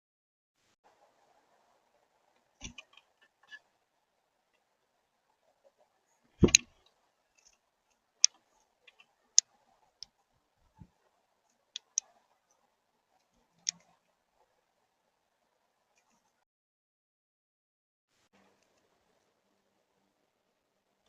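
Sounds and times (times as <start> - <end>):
birds pecking at seed: 2.3 - 3.8, 5.3 - 14.1.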